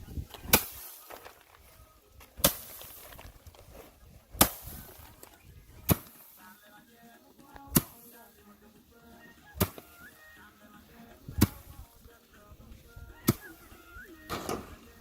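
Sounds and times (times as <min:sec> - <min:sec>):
loud sharp whacks: 0:00.5 - 0:00.9, 0:04.4 - 0:04.7.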